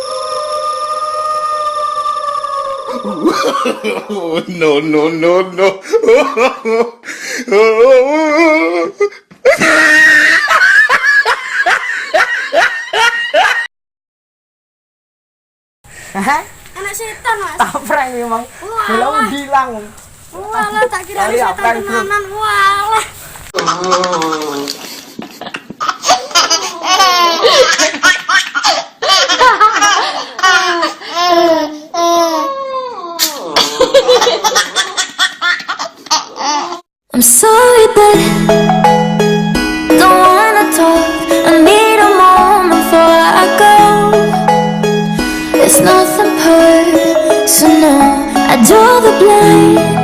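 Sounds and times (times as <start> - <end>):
high-pitched ghostly laugh: 0.0 - 4.8, 9.5 - 13.7, 23.6 - 31.6, 33.2 - 36.8.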